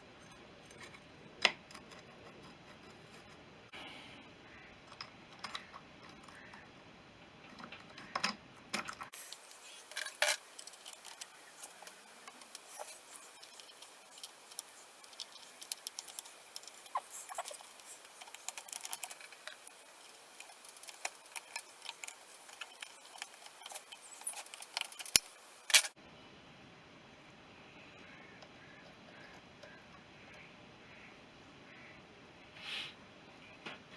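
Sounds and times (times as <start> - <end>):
metal parts and tools clicking: 7.4 - 26.0.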